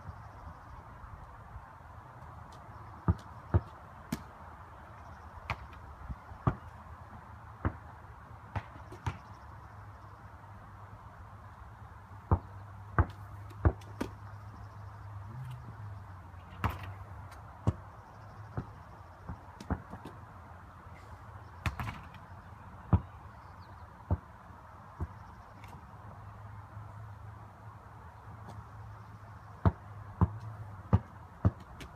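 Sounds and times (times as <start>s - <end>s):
basketball bouncing: 3.1s - 4.2s, 12.3s - 14.1s, 16.6s - 17.0s, 29.6s - 31.9s.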